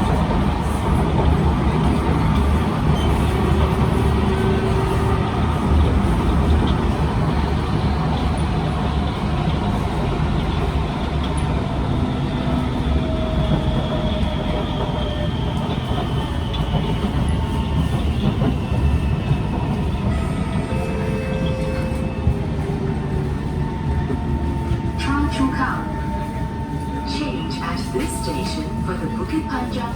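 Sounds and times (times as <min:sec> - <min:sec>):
train wheels rumbling on track: 0:00.0 - 0:29.9.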